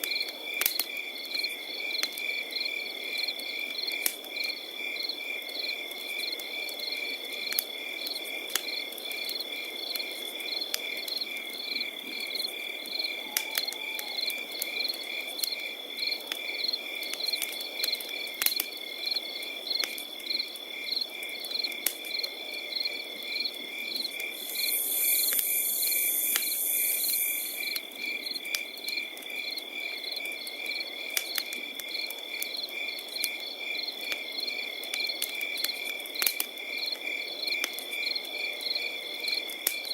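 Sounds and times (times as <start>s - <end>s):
campfire crackling and popping: 0.0s - 38.4s, 39.3s - 39.9s
crickets chirping: 0.1s - 39.9s
high-pitched insect buzz: 24.4s - 27.6s.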